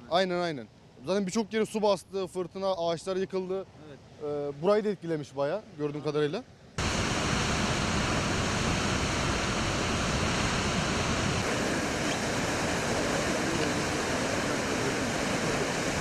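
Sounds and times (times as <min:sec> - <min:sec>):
waterfall rushing: 0:06.8 - 0:16.0.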